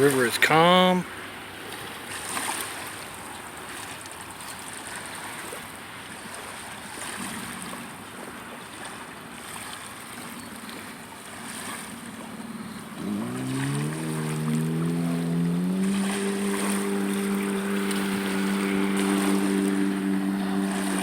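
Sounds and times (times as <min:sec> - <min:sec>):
distant boat motor drone: 0:00.0 - 0:02.0, 0:07.0 - 0:21.0
water washing: 0:11.4 - 0:21.0.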